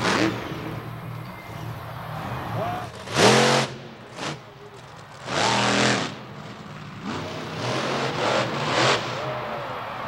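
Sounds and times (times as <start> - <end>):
monster truck engine revving: 0.0 - 1.0, 2.0 - 10.0.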